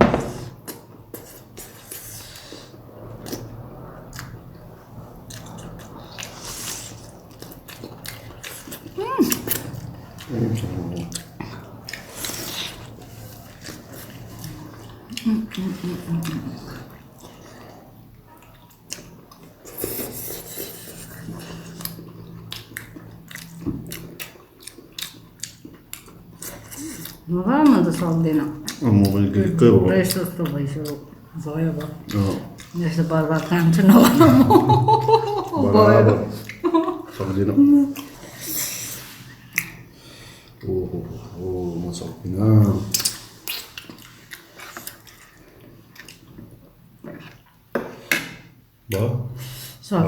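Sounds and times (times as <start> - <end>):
low steady hum: 0.0 - 47.7
chewing and mouth smacks: 5.3 - 27.3, 30.1 - 32.8, 39.4 - 39.9, 42.9 - 48.4
chewing mouth clicks and smacks: 21.2 - 27.2, 42.9 - 47.6.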